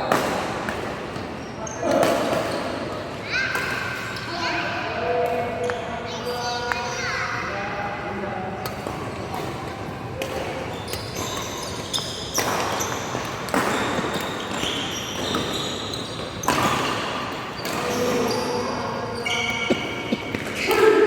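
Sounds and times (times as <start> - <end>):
racket hitting shuttlecock: 8.6 - 18.7
shoes squeaking on court: 10.3 - 20.7.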